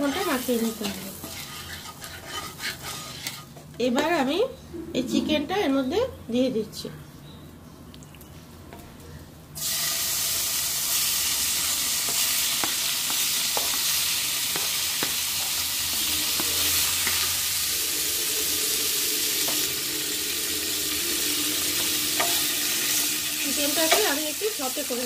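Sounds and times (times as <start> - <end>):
chicken sizzling in a frying pan: 0.0 - 1.8, 9.6 - 25.0
spatula tapping a pan: 12.0 - 17.3, 21.8 - 22.5.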